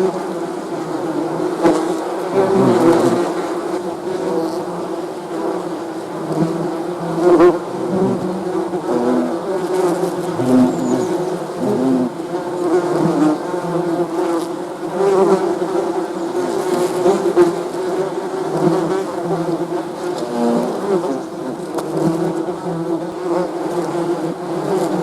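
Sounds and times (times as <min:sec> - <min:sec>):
bees buzzing: 0:00.3 - 0:15.3.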